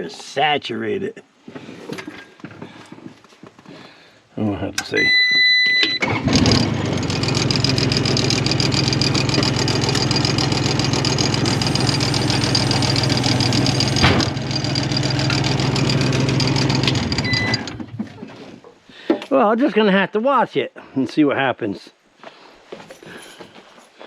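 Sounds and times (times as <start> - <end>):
steady warning beep: 5.0 - 6.0, 17.2 - 17.7
skid steer engine running: 6.0 - 18.1.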